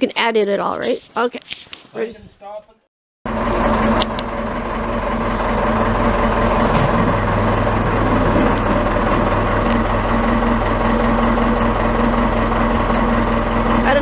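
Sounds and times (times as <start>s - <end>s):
backhoe engine idling: 3.3s - 14.0s.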